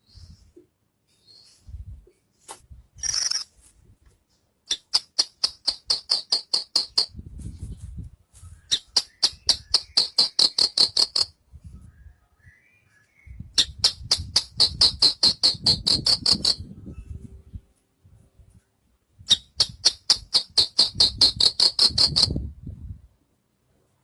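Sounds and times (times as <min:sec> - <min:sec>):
bird singing high repeated notes: 0:08.5 - 0:17.2.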